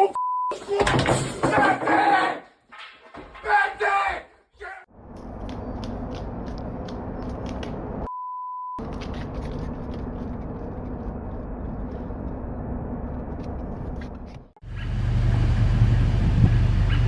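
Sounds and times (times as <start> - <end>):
censor bleep: 8.1 - 8.8.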